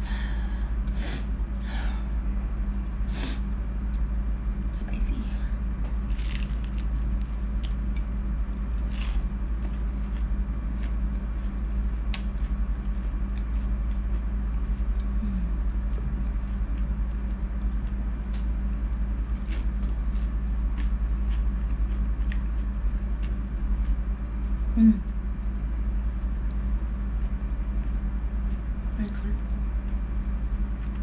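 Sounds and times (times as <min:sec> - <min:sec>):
steady low hum: 0:00.0 - 0:31.0
chewing with mouth clicks: 0:05.9 - 0:15.2, 0:19.3 - 0:24.0.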